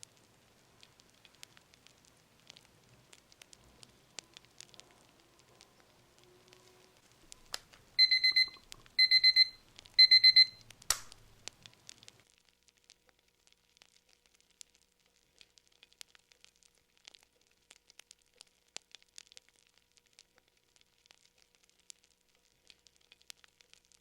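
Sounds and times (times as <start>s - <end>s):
faint fire crackling: 0.0s - 24.0s
timer alarm beeping: 8.0s - 10.6s
sharp click: 10.9s - 11.2s.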